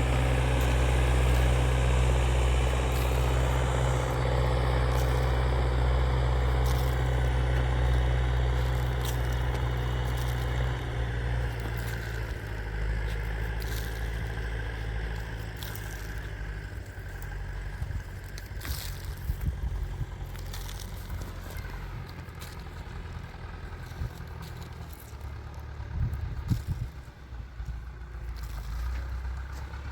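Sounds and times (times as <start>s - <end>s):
scraping and crackling: 0.0s - 27.1s
engine idling: 0.0s - 29.9s.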